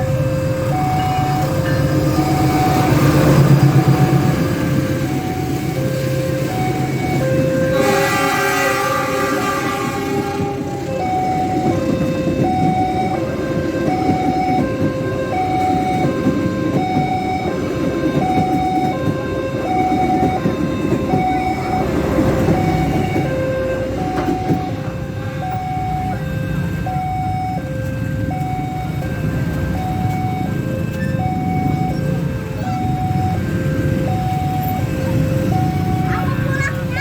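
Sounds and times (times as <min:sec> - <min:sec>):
passing train rumble: 0:00.0 - 0:37.0
two-tone crossing alarm chime: 0:00.0 - 0:37.0.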